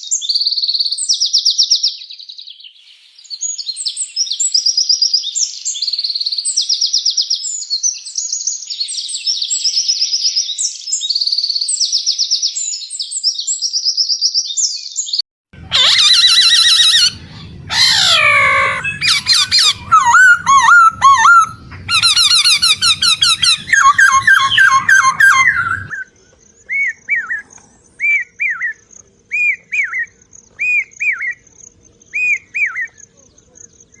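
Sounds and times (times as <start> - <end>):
songbirds singing: 14.5 - 34.0
bird repeating whistled phrase: 15.7 - 26.1.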